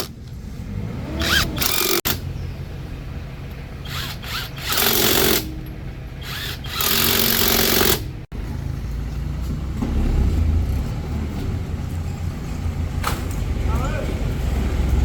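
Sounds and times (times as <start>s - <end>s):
impact wrench hammering: 1.2s - 2.2s, 3.9s - 5.5s, 6.2s - 8.2s.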